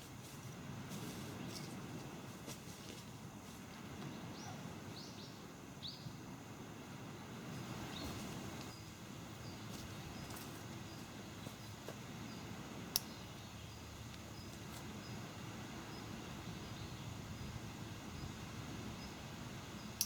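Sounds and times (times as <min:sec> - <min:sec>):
sea waves rushing: 0:06.2 - 0:09.4.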